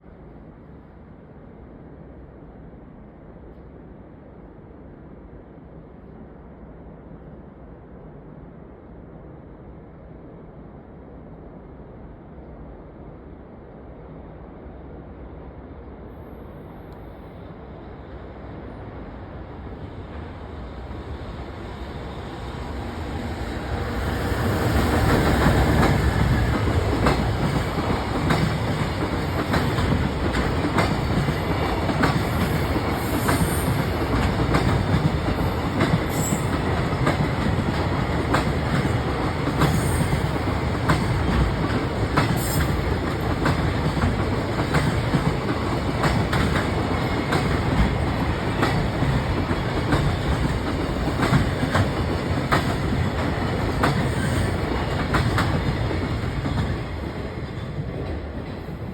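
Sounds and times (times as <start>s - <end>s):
freight train rolling past: 4.8s - 58.9s
wheels clickety-clack over rail joints: 23.6s - 58.9s.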